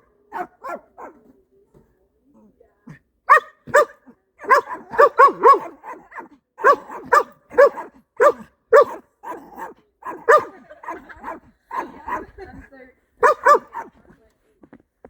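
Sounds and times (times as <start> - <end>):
dogs barking: 0.3 - 1.2, 3.3 - 12.3, 13.2 - 14.0.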